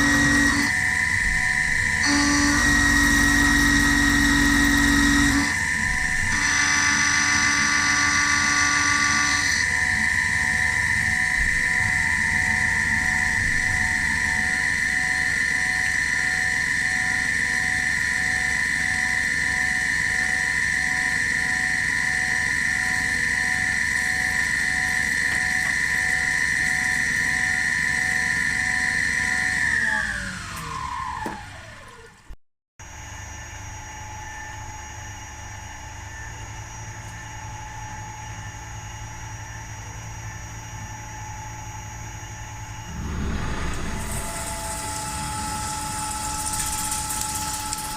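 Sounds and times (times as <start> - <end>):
milling spindle high whine: 0.0 - 32.1, 32.9 - 47.9
quiet machine hum: 32.9 - 47.9.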